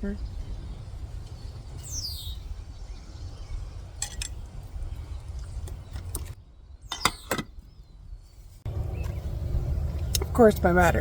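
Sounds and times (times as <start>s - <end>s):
bird chirping: 0.0s - 10.7s
low outdoor rumble: 7.5s - 11.0s.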